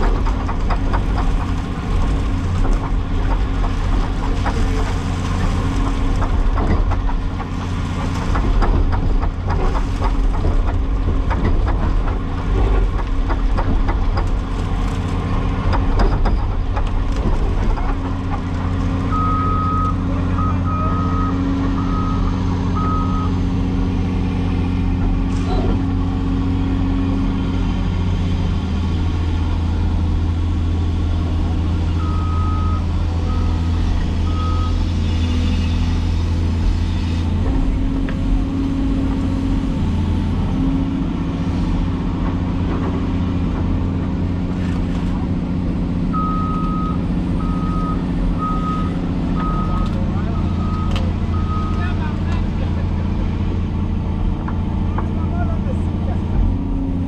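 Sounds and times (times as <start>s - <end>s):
clanking and knocking: 0.0s - 19.3s
excavator diesel engine: 0.0s - 57.0s
reversing alarm beeping: 19.1s - 23.4s, 46.2s - 51.9s.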